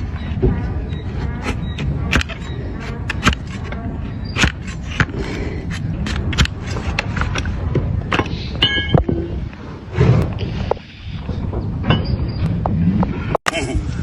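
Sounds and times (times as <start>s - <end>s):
trimming tool clicking on hoof: 0.9s - 7.5s
high ringing: 8.6s - 9.3s.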